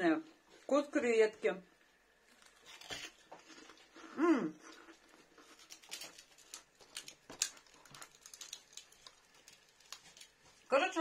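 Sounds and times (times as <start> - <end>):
person chewing crispy crackers: 2.2 - 10.7.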